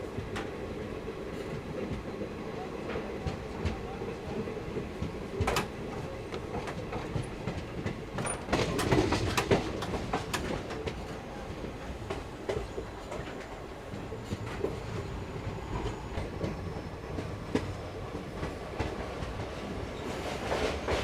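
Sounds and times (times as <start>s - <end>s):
train running rumble: 0.0s - 21.0s
wheels clacking over rail joints: 4.9s - 11.2s.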